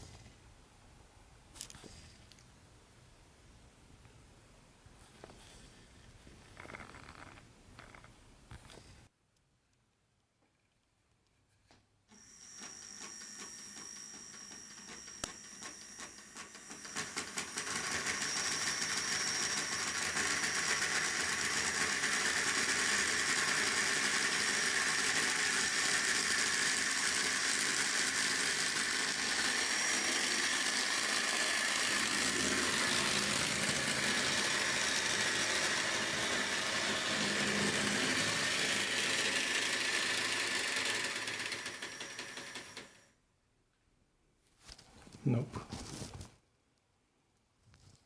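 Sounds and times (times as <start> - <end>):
model train motor whirring: 6.4 - 8.1, 12.1 - 43.1.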